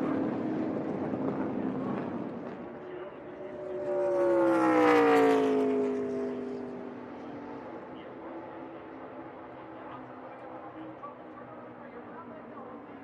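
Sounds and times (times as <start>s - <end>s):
race car passing at speed: 0.0s - 7.9s.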